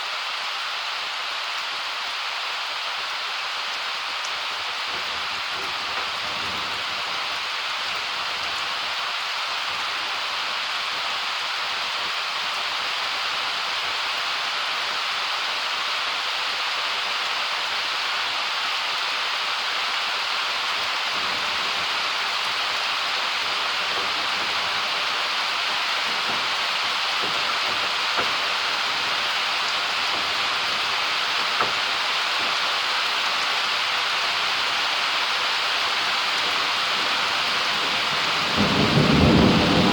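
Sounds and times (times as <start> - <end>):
heavy rain pouring: 0.0 - 39.9
sharp drips: 21.2 - 35.0.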